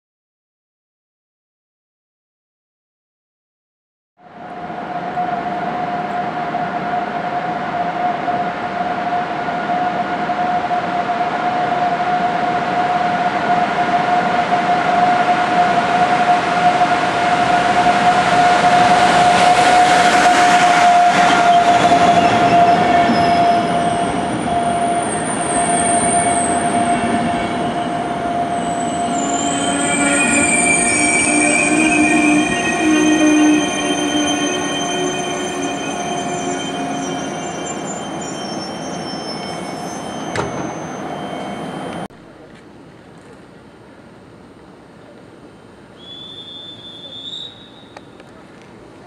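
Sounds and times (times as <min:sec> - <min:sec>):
train rumbling: 0:04.2 - 0:42.4
steady high tone: 0:04.3 - 0:42.1
wheels and brakes squealing: 0:05.0 - 0:42.1, 0:46.0 - 0:48.2.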